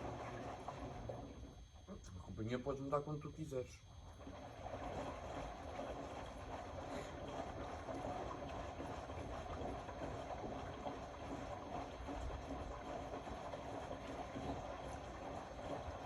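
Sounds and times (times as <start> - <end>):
washing machine drum tumbling: 0.0 - 1.6
water sloshing: 0.0 - 2.0, 3.9 - 16.0.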